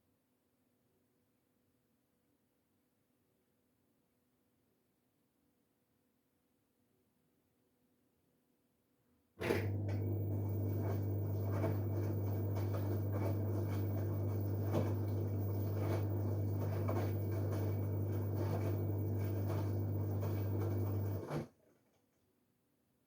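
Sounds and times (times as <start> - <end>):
washing machine hum: 9.4 - 21.5
laundry and water swishing: 9.6 - 21.4.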